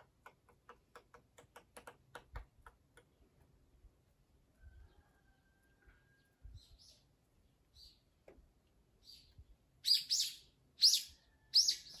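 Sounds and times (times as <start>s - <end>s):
bird calling: 9.0s - 12.0s.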